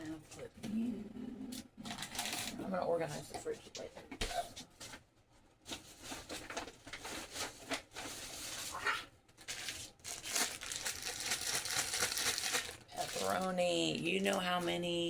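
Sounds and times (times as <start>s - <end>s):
packaging rustling and crinkling: 1.8s - 2.6s, 4.7s - 14.7s.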